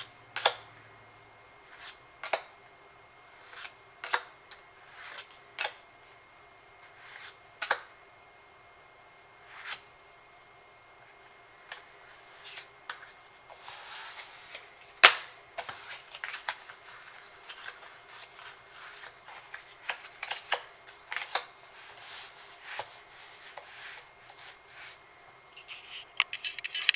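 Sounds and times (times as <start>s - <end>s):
cards swishing and clicking: 11.7s - 25.0s.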